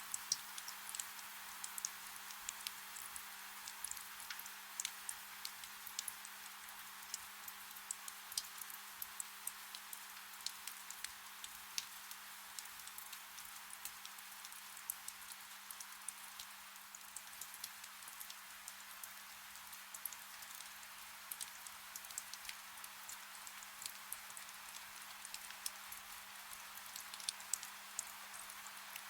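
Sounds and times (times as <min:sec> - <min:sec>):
raindrops ticking: 0:00.1 - 0:06.3.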